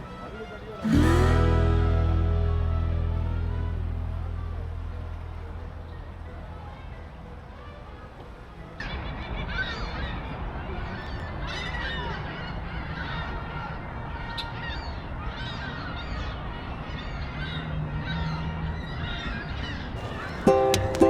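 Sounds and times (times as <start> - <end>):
low outdoor rumble: 0.8 - 9.4.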